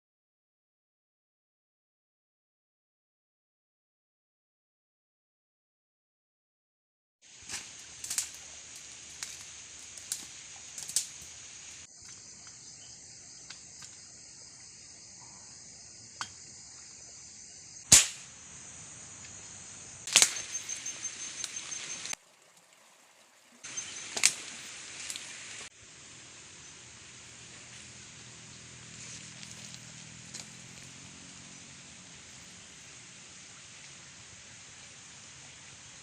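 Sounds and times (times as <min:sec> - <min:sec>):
forest insects droning: 0:07.2 - 0:36.0
gunshots: 0:17.9 - 0:18.3, 0:20.1 - 0:20.6.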